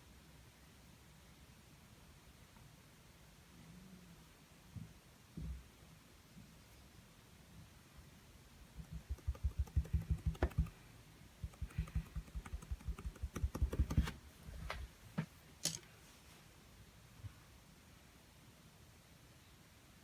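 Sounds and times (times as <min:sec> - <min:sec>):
paint dabbing on canvas: 0:08.8 - 0:14.2
sharp clicks: 0:09.0 - 0:10.8, 0:11.4 - 0:14.1.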